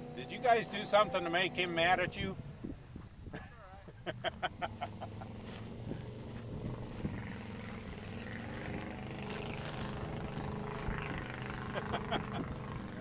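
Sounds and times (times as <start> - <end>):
heavy vehicle engine running: 4.2 - 13.0.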